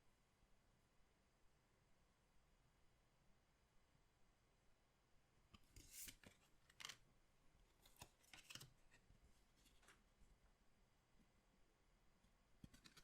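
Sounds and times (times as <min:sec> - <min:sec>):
cards crinkling and rustling: 0:05.7 - 0:07.0, 0:07.7 - 0:10.0, 0:12.6 - 0:13.0.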